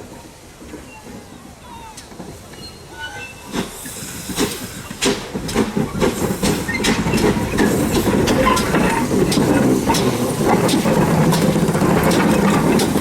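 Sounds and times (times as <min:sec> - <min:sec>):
wheels rumbling on rails: 0:00.0 - 0:13.0
steam locomotive chuffing: 0:01.9 - 0:13.0.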